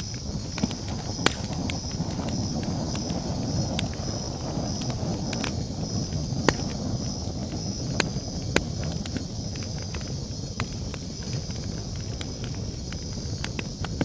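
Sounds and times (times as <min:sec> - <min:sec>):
campfire crackling: 0:00.0 - 0:14.0
low rumble of burning wood: 0:00.0 - 0:14.0
night insects trilling: 0:00.0 - 0:14.0.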